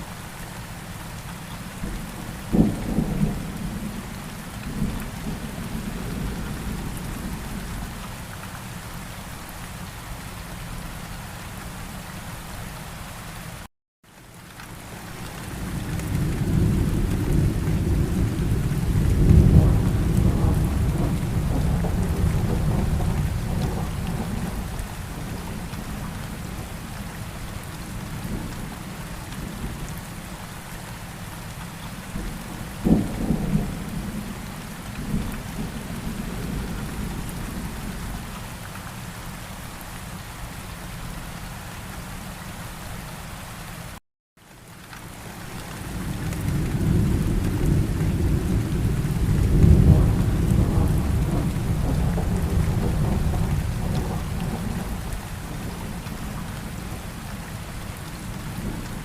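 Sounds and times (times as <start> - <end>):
steady rain: 0.0 - 59.0
thunder rumbling: 1.8 - 7.9, 15.6 - 26.9, 32.1 - 38.3, 45.9 - 59.0
sharp thunderclap: 16.2 - 24.7, 46.4 - 56.4.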